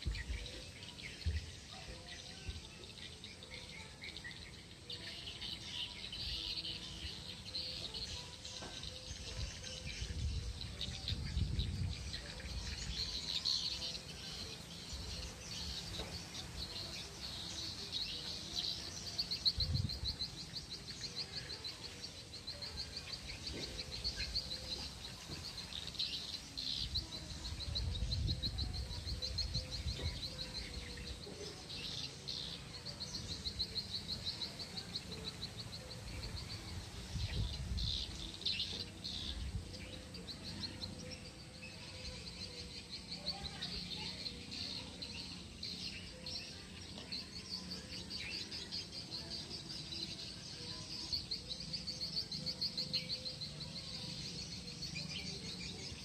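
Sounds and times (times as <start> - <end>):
birds chirping in trills: 0.0 - 56.0.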